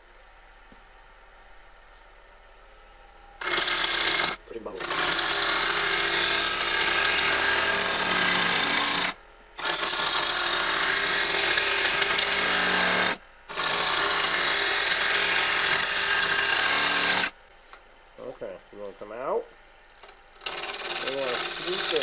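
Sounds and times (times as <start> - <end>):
faint hum: 0.0 - 21.9
gouge rasping wood on lathe: 3.4 - 17.3, 20.4 - 22.0.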